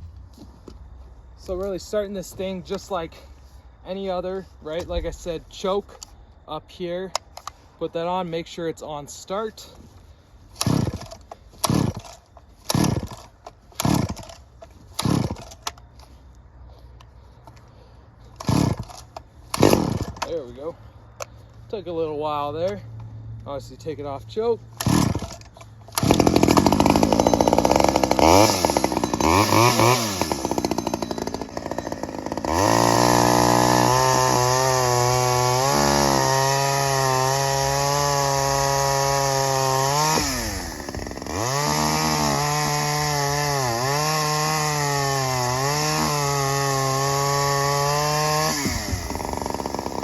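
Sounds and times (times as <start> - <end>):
chainsaw running at high revs: 10.6 - 14.4, 15.0 - 15.5, 18.4 - 19.0, 19.6 - 20.4, 24.8 - 25.4, 26.0 - 50.0.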